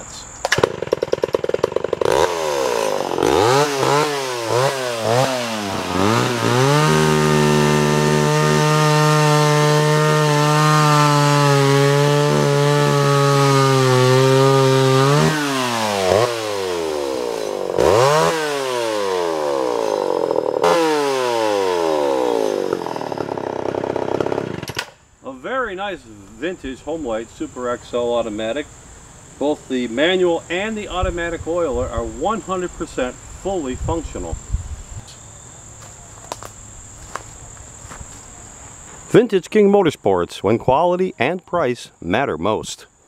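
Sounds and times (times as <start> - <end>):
chainsaw engine revving: 0.5 - 25.0.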